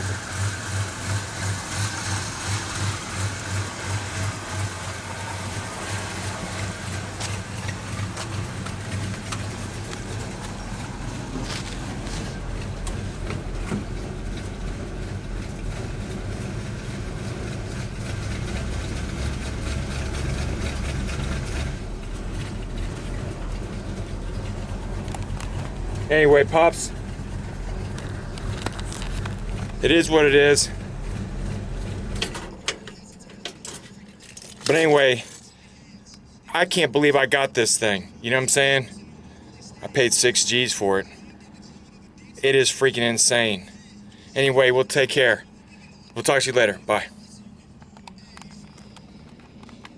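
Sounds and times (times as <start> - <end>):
truck engine idling: 0.0 - 49.9.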